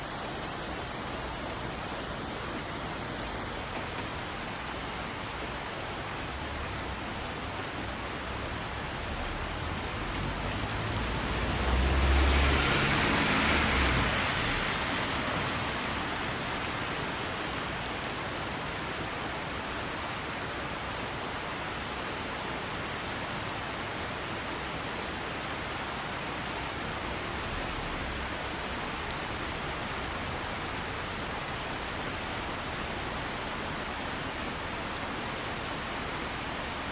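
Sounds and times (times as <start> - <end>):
heavy rain: 0.0 - 36.9.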